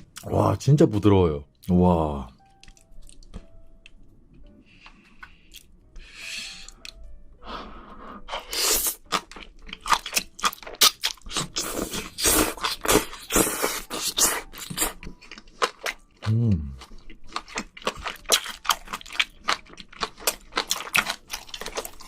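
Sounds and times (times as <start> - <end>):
wet chewing: 2.4 - 4.0, 8.4 - 22.0
crunching while eating: 8.4 - 22.0.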